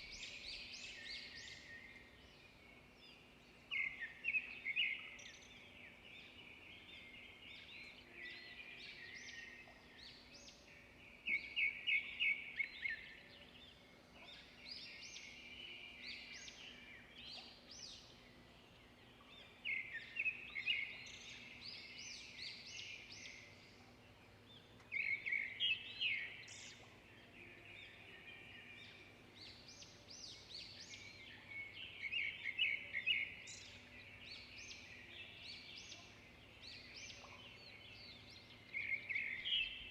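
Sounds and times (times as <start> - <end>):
songbirds trilling: 0.0 - 39.9.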